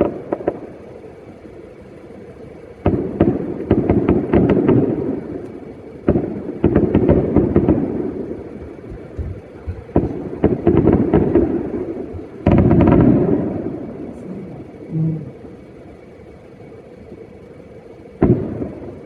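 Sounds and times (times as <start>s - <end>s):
firework crackling: 0.0s - 19.0s
rumble after firework burst: 0.0s - 19.0s
firework bangs: 2.8s - 14.0s, 18.2s - 19.0s.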